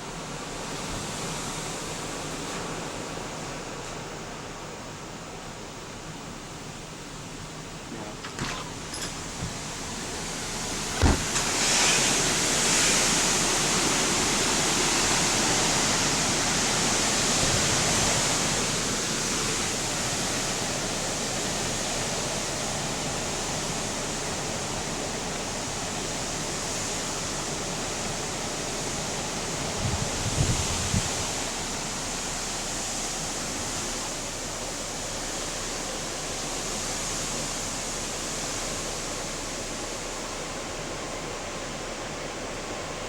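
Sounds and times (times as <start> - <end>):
rushing hurricane wind and rain: 0.1 - 43.0
short thump: 11.0 - 11.5.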